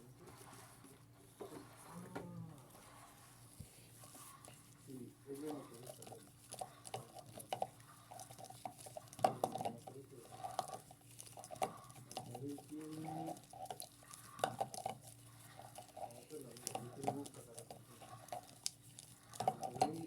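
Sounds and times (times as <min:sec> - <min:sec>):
low machine hum: 0:00.0 - 0:06.8.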